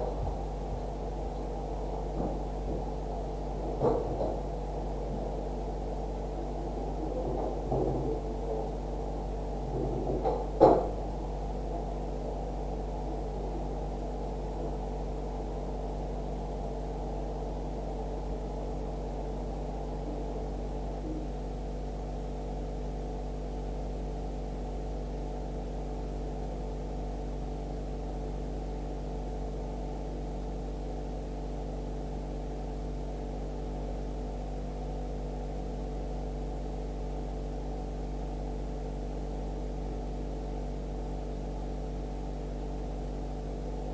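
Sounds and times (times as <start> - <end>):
muffled low electrical hum: 0.0 - 43.9
single knock: 9.9 - 11.1.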